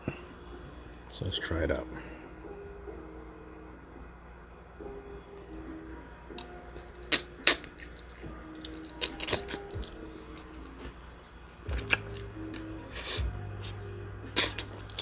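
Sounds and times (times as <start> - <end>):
wet crunchy chewing: 6.3 - 11.0, 11.7 - 15.0.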